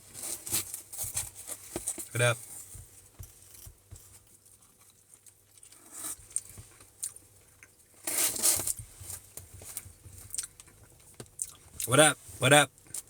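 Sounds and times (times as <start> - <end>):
chewing and biting: 4.4 - 7.8, 10.2 - 11.9
rustle: 7.8 - 10.3.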